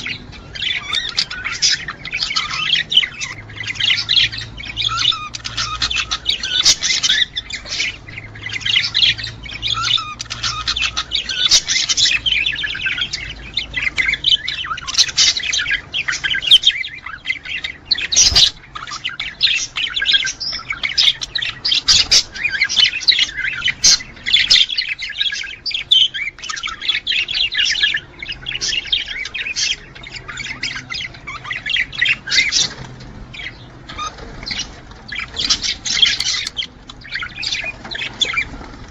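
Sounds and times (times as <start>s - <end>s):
budgerigars chattering and warbling: 0.0s - 38.9s.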